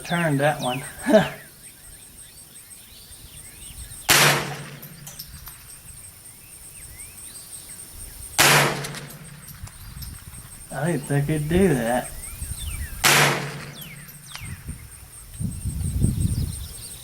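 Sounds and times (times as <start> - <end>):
rifle shots with echo: 4.1 - 5.3, 8.4 - 9.7, 13.0 - 14.4.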